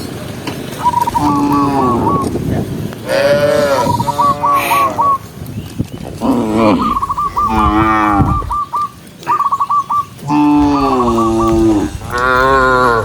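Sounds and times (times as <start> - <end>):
cattle mooing: 1.2 - 2.2, 3.0 - 5.2, 6.2 - 8.6, 10.2 - 13.0.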